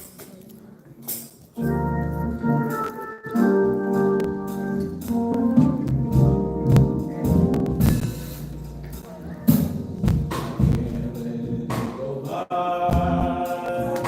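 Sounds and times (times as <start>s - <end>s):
organ playing held chords: 1.6s - 9.1s
sharp percussion hits: 2.7s - 10.9s.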